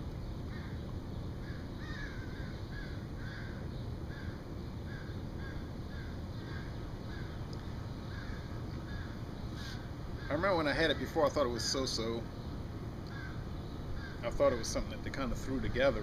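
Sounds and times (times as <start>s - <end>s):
low steady rumble: 0.0s - 16.0s
bird calling: 0.5s - 15.9s.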